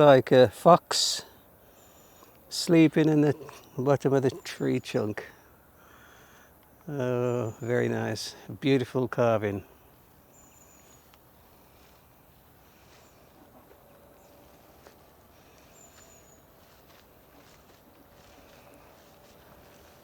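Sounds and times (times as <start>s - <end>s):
high falling bird calls: 0.6s - 20.0s
faint ticks: 10.9s - 12.0s.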